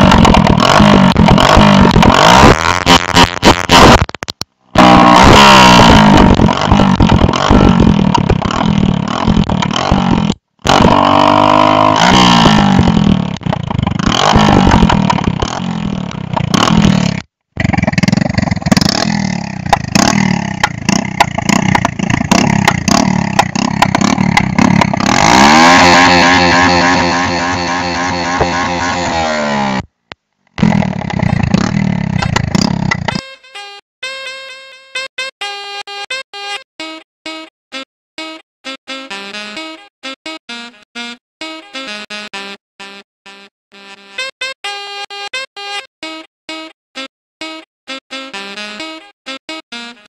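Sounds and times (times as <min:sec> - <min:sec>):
motorcycle engines revving: 0:00.0 - 0:04.1, 0:04.7 - 0:29.9, 0:30.6 - 0:33.2
exhaust popping and crackling: 0:00.0 - 0:33.2.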